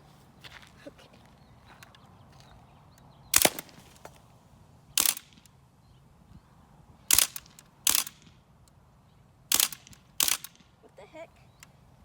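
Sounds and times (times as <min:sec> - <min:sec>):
air gun shots: 0:03.3 - 0:04.0, 0:05.0 - 0:05.5, 0:07.1 - 0:08.4, 0:09.5 - 0:10.7.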